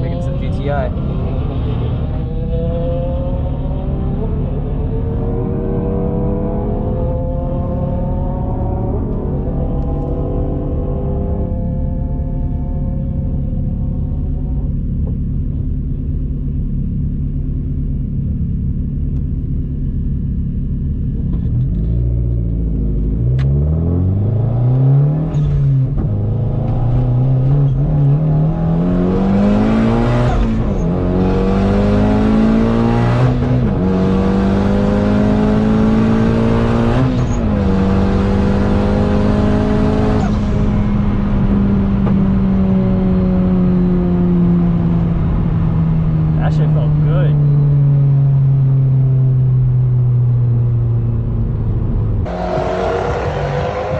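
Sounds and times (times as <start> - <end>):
car engine accelerating hard: 0.0 - 16.7, 20.9 - 53.9
car engine idling: 13.4 - 21.4, 49.6 - 53.9.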